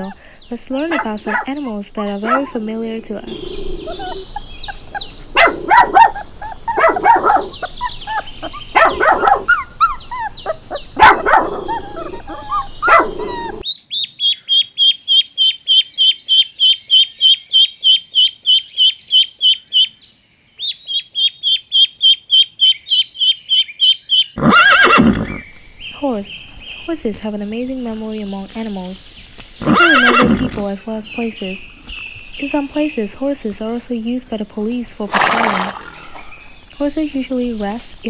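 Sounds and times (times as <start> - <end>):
loud animal calls: 0.0 - 13.7, 24.4 - 25.8, 29.6 - 38.0
rapid high chirping: 0.0 - 14.1.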